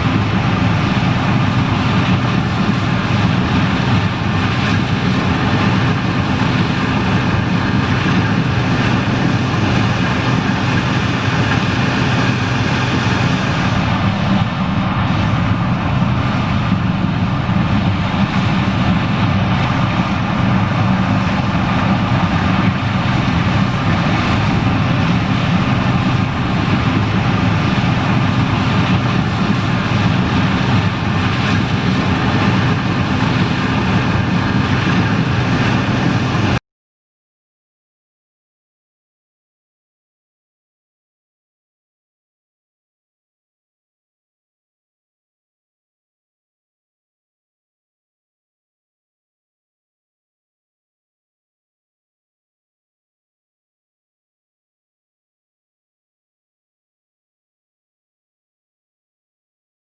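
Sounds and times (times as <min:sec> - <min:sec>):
combine harvester engine droning: 0:00.0 - 0:36.6.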